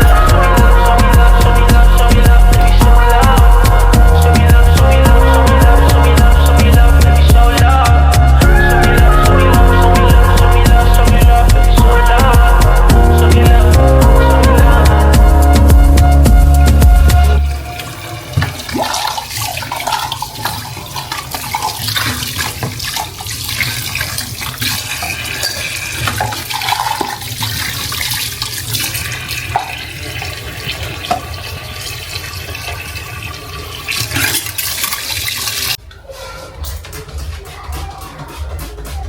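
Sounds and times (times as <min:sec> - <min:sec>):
tap running into sink: 0:17.6 - 0:31.5.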